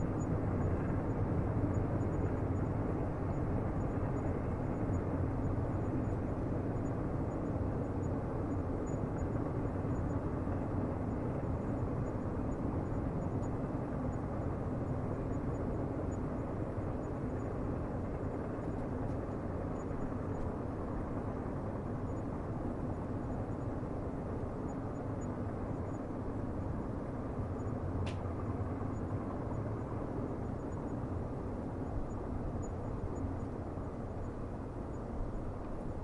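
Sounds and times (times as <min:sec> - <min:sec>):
sharp click: 0:28.0 - 0:28.3.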